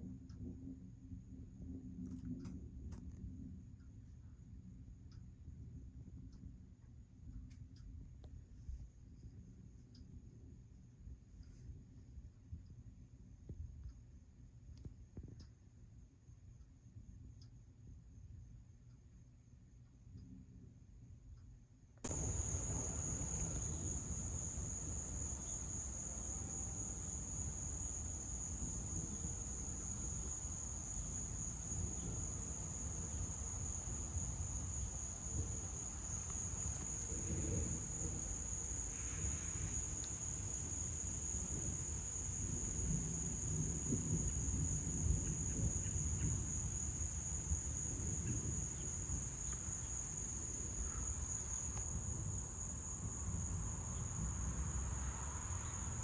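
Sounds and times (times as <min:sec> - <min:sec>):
faint insect chirps: 0:07.4 - 0:56.0
crickets trilling: 0:22.1 - 0:56.0.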